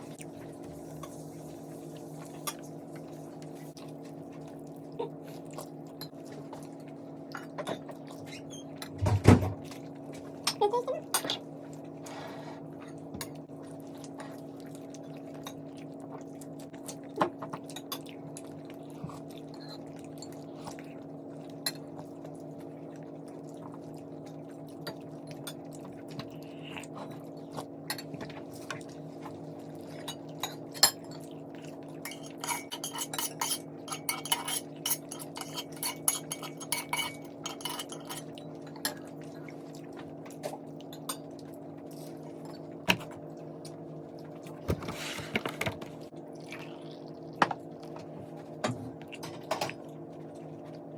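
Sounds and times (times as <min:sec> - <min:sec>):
cutlery scraping a plate: 0:32.1 - 0:38.3.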